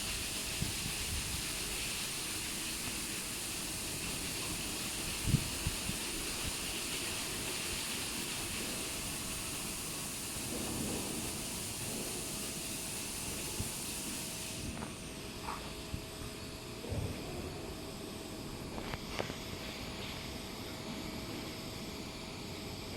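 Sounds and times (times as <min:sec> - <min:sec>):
high-pressure water jets hissing: 0:00.0 - 0:14.8.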